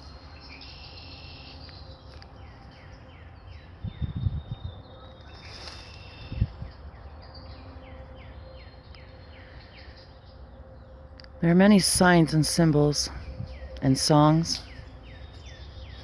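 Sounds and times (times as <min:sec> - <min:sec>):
steady high hum: 0:00.0 - 0:16.0
wind buffeting microphone: 0:03.0 - 0:05.5, 0:06.2 - 0:07.4, 0:11.8 - 0:16.0.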